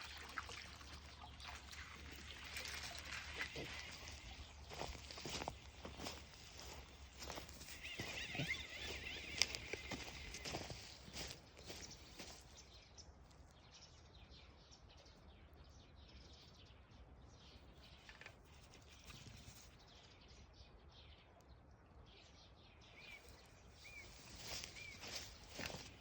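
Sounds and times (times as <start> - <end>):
faint rustling: 23.3 - 26.0.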